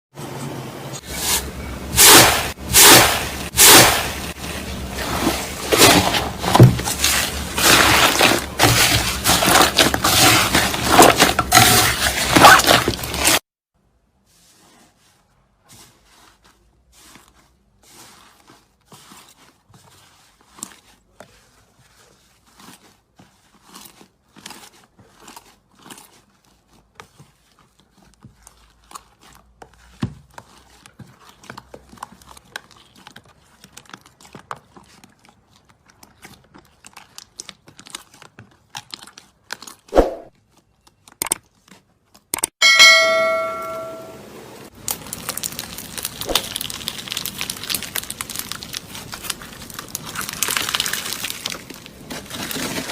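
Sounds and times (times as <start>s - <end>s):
slime squeezed by hand: 44.8s - 52.9s.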